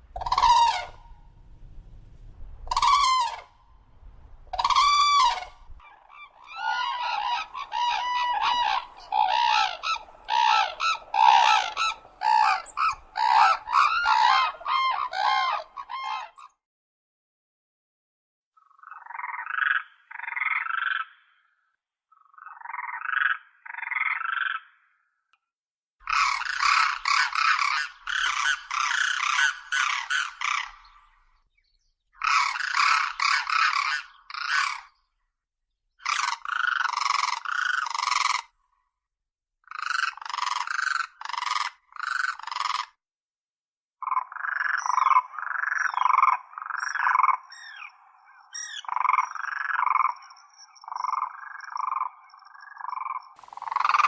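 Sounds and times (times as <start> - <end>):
cranes trumpeting calls: 0.1 - 1.3, 2.6 - 3.6, 4.5 - 16.5, 26.1 - 31.2, 32.2 - 34.9, 36.0 - 38.5, 39.7 - 42.9, 44.3 - 54.0.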